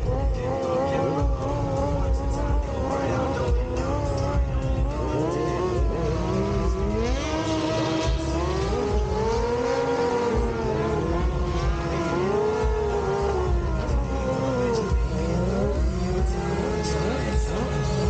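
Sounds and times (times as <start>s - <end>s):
motorcycle engines revving: 0.0s - 18.0s.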